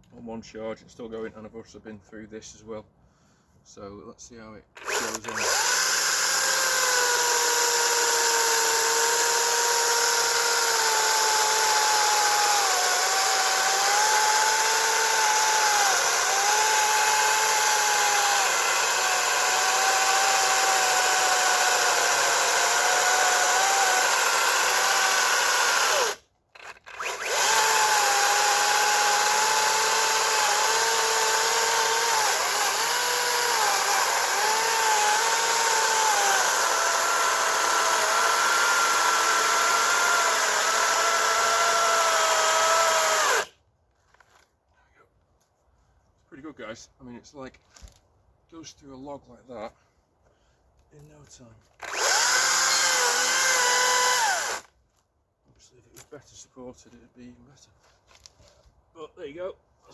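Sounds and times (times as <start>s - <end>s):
electric chainsaw cutting log: 4.8s - 43.5s, 51.8s - 54.7s.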